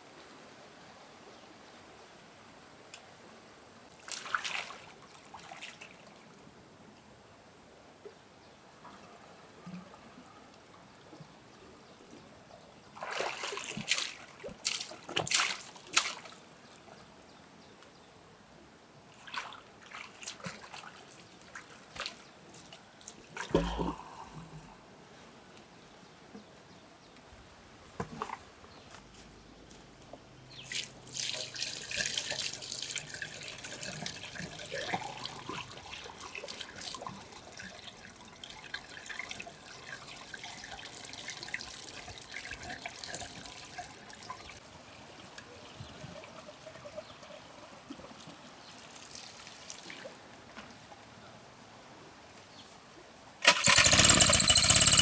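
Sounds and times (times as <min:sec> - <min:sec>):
water splashing and sloshing: 0:03.9 - 0:06.4, 0:12.8 - 0:16.6, 0:19.1 - 0:24.2, 0:30.5 - 0:50.8.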